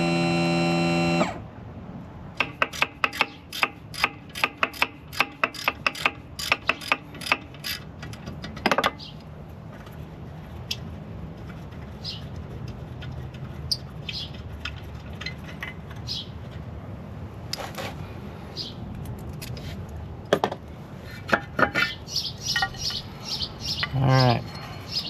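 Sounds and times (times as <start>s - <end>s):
birds chirping: 21.9s - 25.0s.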